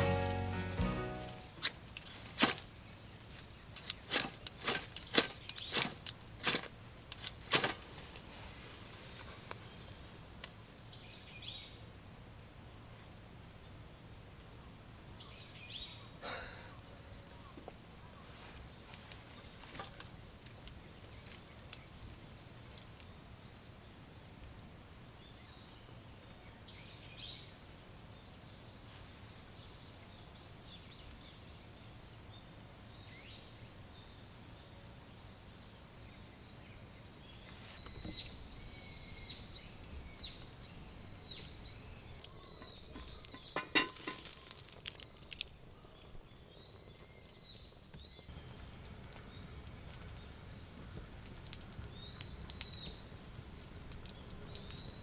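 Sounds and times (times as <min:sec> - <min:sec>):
birds chirping: 0:36.2 - 0:43.9, 0:45.7 - 0:55.0.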